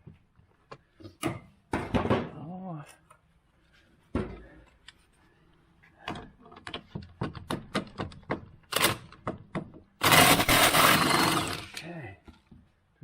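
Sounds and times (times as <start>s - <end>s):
hand tools clicking and knocking: 6.1s - 11.9s.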